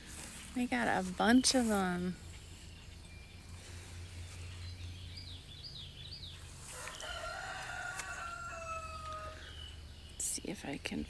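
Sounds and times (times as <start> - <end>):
low outdoor hum: 0.0 - 11.0
small bird chirping: 0.1 - 11.0
rooster crowing: 6.7 - 9.7.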